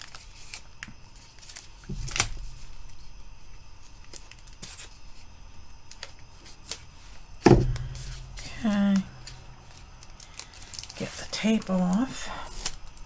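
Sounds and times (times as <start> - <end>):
loud dull thump: 7.4 - 8.5.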